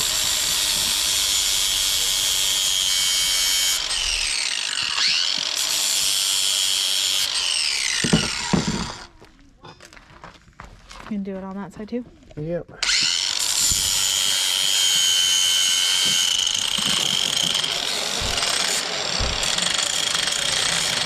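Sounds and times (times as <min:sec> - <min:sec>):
angle grinder grinding steel: 0:00.0 - 0:09.1, 0:12.8 - 0:21.0
knocks: 0:08.0 - 0:09.0, 0:16.0 - 0:19.8.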